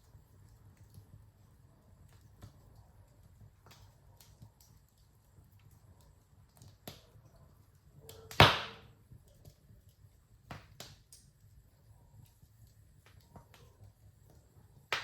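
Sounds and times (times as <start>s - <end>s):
wood fire crackling: 0.0s - 15.0s
loud sharp pop: 8.3s - 8.9s.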